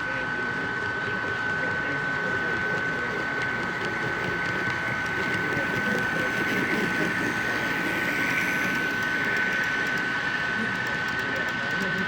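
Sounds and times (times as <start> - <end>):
chatter of many people: 0.0 - 12.0
high-pitched whine: 1.9 - 11.6.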